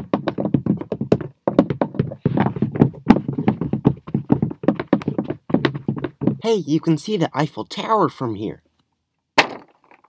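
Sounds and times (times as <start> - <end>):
clay figures tapping on hard floor: 0.0 - 6.4.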